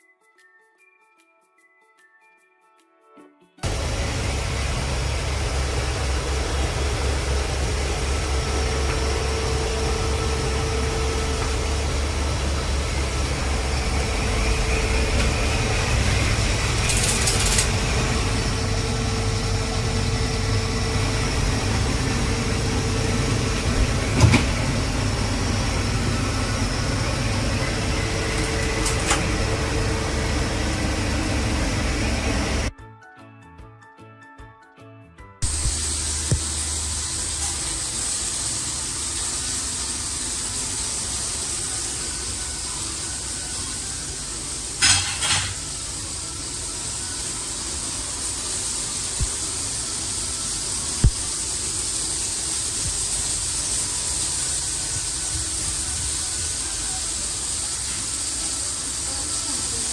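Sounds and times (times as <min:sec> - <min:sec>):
robot vacuum cleaner running: 0:03.6 - 0:32.7, 0:35.4 - 0:59.9
brief hiss: 0:35.4 - 0:43.8.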